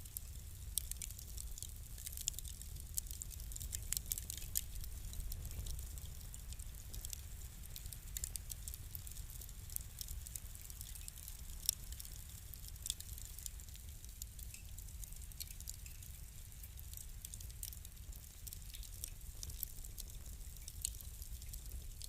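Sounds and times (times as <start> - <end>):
fire crackling and popping: 0.0 - 22.0.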